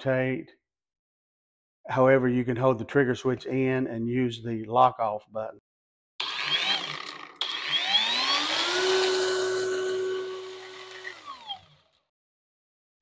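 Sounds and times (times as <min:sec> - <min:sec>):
angle grinder motor whining: 0:06.2 - 0:12.0.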